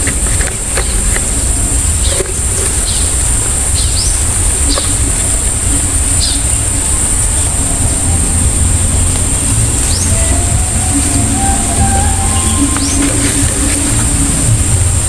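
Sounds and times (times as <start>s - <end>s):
high-pitched insect drone: 0.0s - 15.0s
low rumble: 0.0s - 15.0s
bird chirps: 2.8s - 8.4s, 9.0s - 14.5s.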